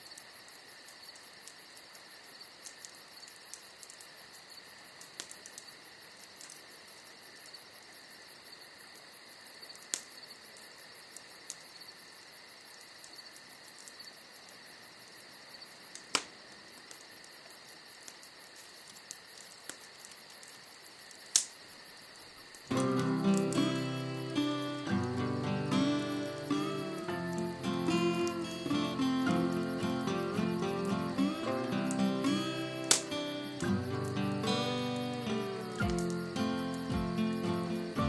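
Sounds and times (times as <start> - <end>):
insects chirring: 0.0 - 38.0
wood fire crackling and popping: 2.4 - 7.6, 15.7 - 21.8, 22.4 - 38.0.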